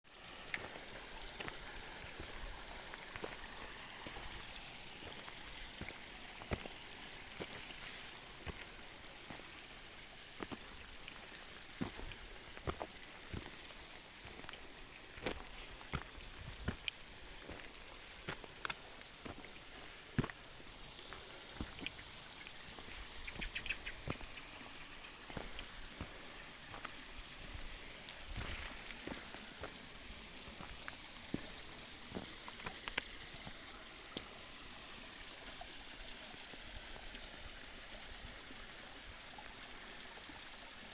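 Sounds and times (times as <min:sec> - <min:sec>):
river water rushing: 0:00.1 - 0:37.0.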